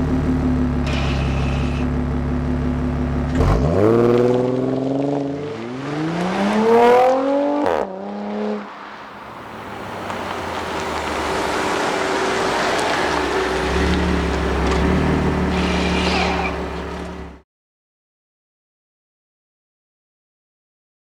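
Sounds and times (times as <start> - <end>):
low exhaust drone: 0.0 - 4.2, 11.0 - 17.4
car exhaust revving: 0.0 - 8.8, 9.4 - 17.4.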